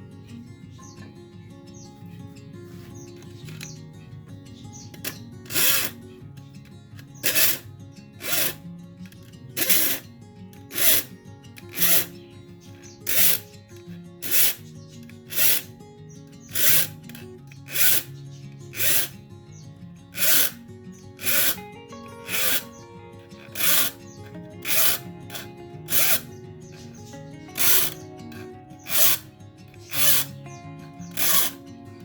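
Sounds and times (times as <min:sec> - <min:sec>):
hand tool rasping on wood: 0:05.1 - 0:06.0, 0:07.2 - 0:07.6, 0:08.2 - 0:08.6, 0:09.6 - 0:10.0, 0:10.7 - 0:12.1, 0:13.0 - 0:13.5, 0:14.2 - 0:14.6, 0:15.2 - 0:15.7, 0:16.4 - 0:18.1, 0:18.7 - 0:19.2, 0:20.2 - 0:20.6, 0:21.2 - 0:22.8, 0:23.4 - 0:30.4, 0:31.0 - 0:31.6
background music: 0:21.2 - 0:32.0.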